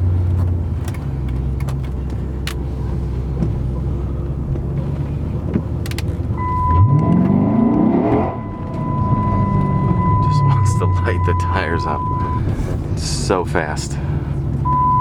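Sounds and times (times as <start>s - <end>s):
car engine rumbling and revving: 0.0s - 15.0s.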